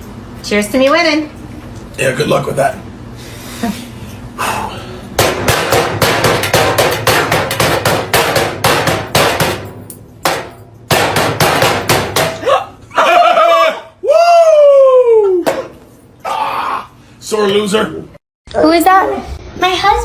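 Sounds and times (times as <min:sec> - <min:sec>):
rapid hard knocks: 0:05.2 - 0:12.4.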